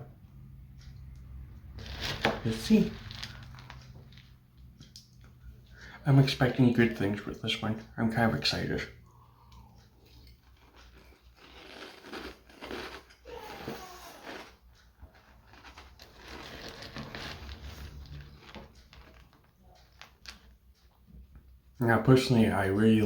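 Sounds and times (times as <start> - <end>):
person chewing crunchy cereal: 1.7 - 5.4, 9.4 - 20.5.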